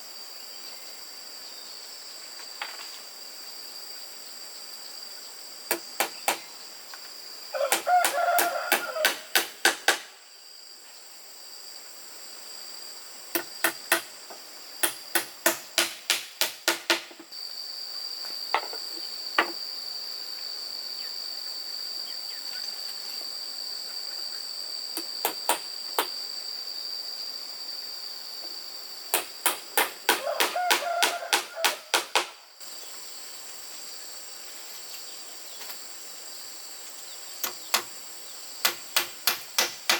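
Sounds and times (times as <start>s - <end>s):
insects droning: 0.0s - 39.9s
hammer driving nails into wood: 5.7s - 6.4s, 7.7s - 10.1s, 13.4s - 14.1s, 14.8s - 17.2s, 29.2s - 30.6s, 31.4s - 32.3s, 37.4s - 37.9s, 38.6s - 39.9s.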